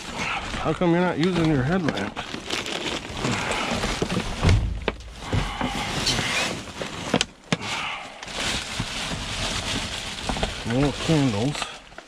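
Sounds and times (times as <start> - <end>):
plastic bags rustling: 0.0 - 12.0
heavy thud: 4.3 - 6.2.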